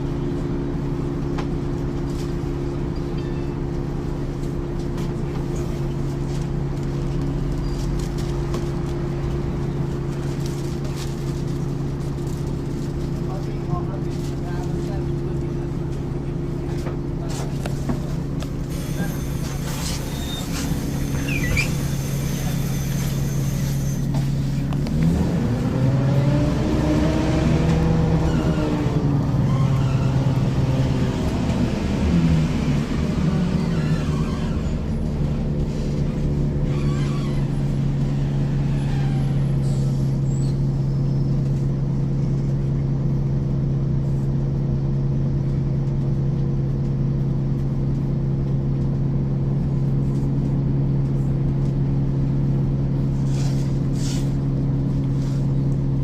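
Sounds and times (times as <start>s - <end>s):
bus diesel engine hum: 0.0s - 56.0s.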